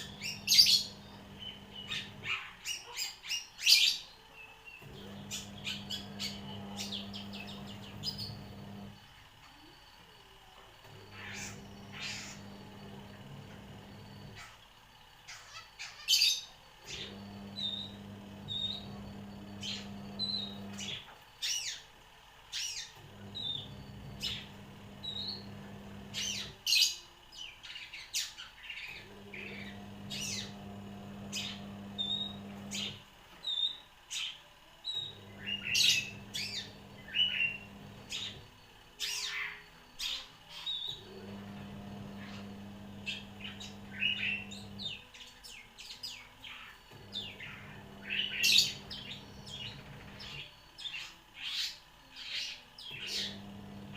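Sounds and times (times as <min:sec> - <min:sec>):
shrike singing: 0:00.0 - 0:14.6, 0:28.8 - 0:53.9.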